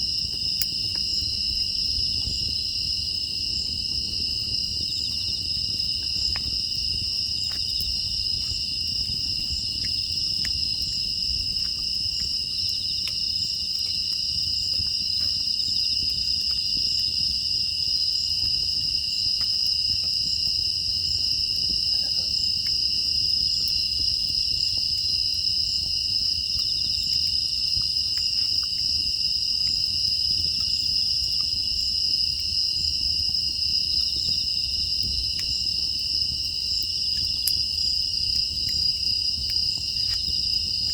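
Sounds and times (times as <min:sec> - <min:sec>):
insects trilling: 0:00.0 - 0:40.9
faint ticks: 0:09.7 - 0:10.9, 0:36.4 - 0:37.6.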